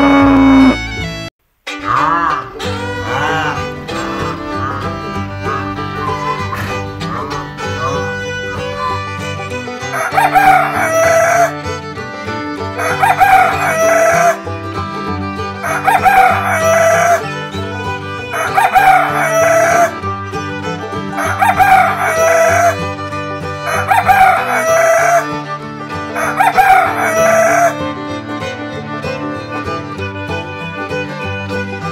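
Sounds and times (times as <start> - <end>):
rooster crowing: 0.0 - 0.8, 9.9 - 11.6, 12.8 - 14.4, 15.6 - 17.3, 18.3 - 20.0, 21.2 - 22.8, 23.6 - 25.3, 26.2 - 27.8
background music with fiddle: 0.0 - 31.9.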